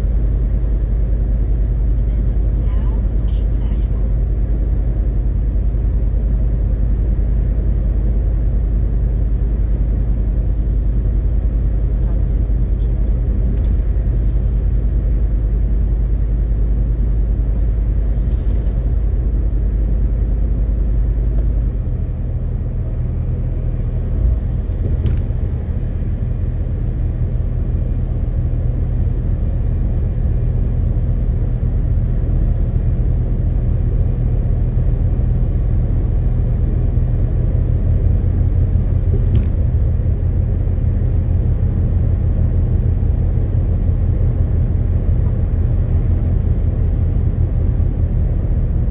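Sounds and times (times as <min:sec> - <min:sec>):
road rumble: 0:00.0 - 0:48.9
truck diesel engine drone: 0:00.0 - 0:48.9.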